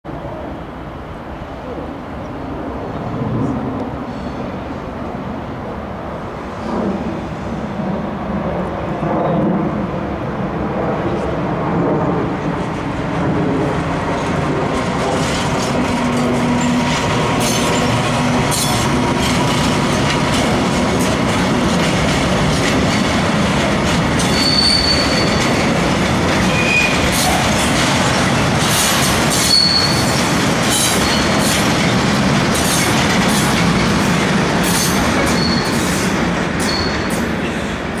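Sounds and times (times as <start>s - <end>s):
diesel locomotive engine: 0.1s - 38.0s
wheels clicking over rail joints: 14.4s - 36.0s
wheel squeals: 24.2s - 25.5s, 26.4s - 27.3s, 29.3s - 31.5s, 34.8s - 35.9s, 36.6s - 37.2s.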